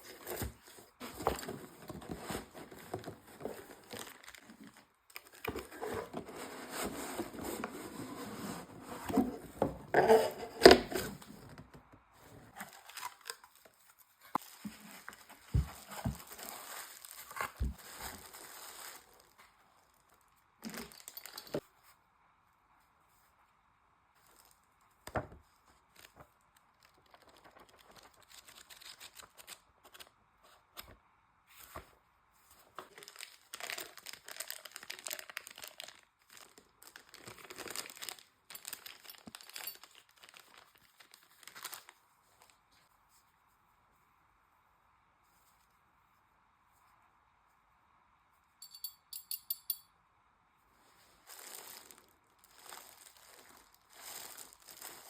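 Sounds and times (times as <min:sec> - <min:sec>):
packaging rustling and crinkling: 0:00.0 - 0:11.5, 0:12.4 - 0:21.6, 0:25.6 - 0:30.1, 0:32.6 - 0:42.7, 0:51.0 - 0:55.0
packaging tearing: 0:12.6 - 0:13.7, 0:32.9 - 0:41.9, 0:51.3 - 0:55.0.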